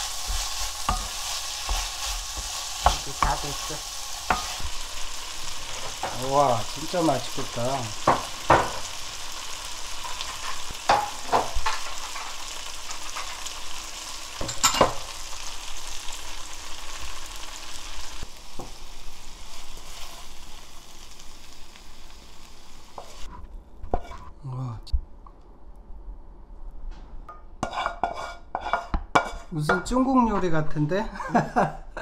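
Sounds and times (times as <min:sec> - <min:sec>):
food sizzling in a wok: 0:00.0 - 0:23.3, 0:23.9 - 0:24.3, 0:27.6 - 0:29.5.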